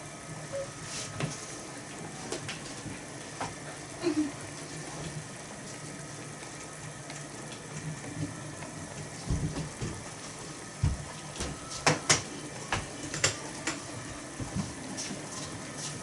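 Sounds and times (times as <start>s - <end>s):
stew simmering and bubbling: 0.0s - 16.0s.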